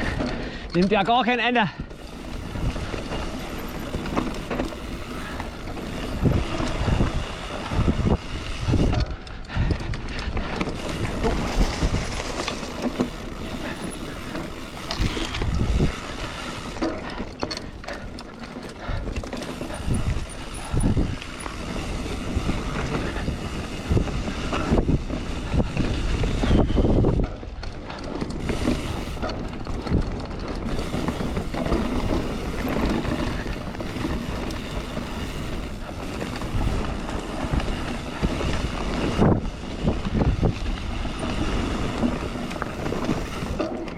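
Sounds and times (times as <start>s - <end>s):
bike knocks and rattles: 0.0s - 43.9s
bike tyre rumble on dirt: 0.0s - 43.9s.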